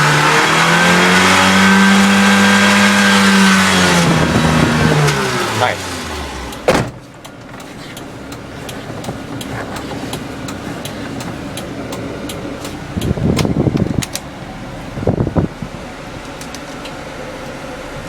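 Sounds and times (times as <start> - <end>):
car engine idling with ticking: 4.3 - 18.0.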